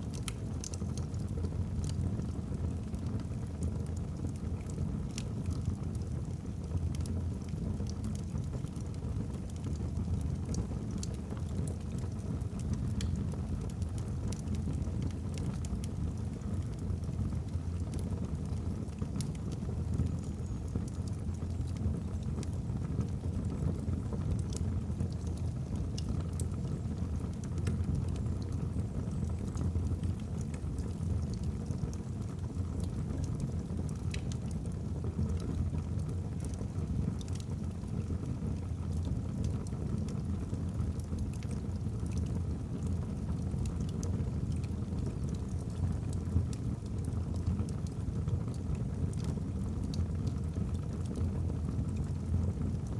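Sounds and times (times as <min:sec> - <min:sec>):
logs crackling and popping: 0:00.1 - 0:52.9.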